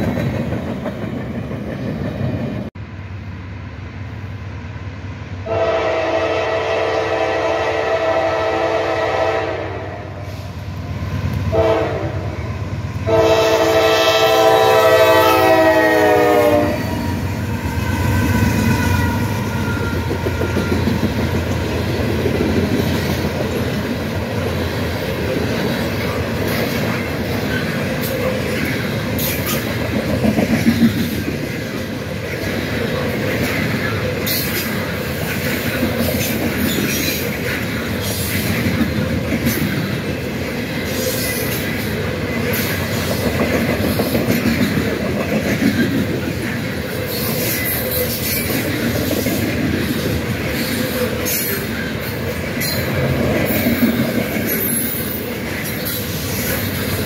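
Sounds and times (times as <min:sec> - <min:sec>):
clickety-clack over rail joints: 0:00.0 - 0:02.7, 0:18.7 - 0:57.0
train wheels rumbling on rails: 0:00.0 - 0:57.0.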